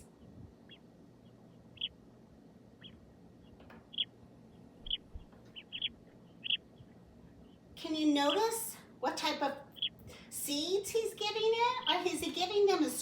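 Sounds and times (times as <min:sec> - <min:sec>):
sparrows chirping: 0:00.2 - 0:02.0, 0:02.8 - 0:07.7, 0:09.7 - 0:10.1, 0:11.2 - 0:12.9.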